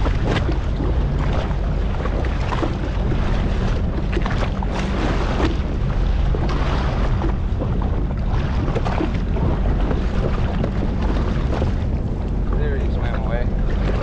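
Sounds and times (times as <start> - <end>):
jet ski engine rumble: 0.0 - 14.0
water splashing: 0.0 - 14.0
wind buffeting microphone: 0.0 - 14.0.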